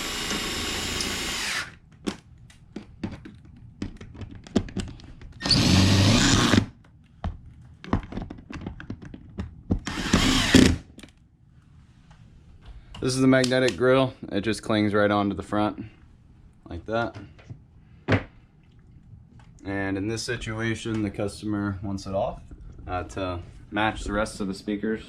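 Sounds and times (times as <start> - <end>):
power drill driving screws: 0.0 - 1.8, 5.4 - 6.7, 9.8 - 10.8
handling clicks and knocks: 2.0 - 5.4, 7.2 - 9.8.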